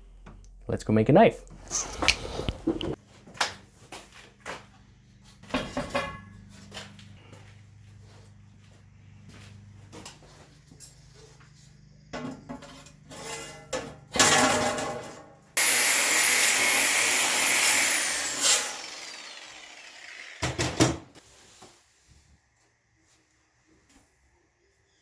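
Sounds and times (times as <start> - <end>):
power tool running: 15.6 - 21.2.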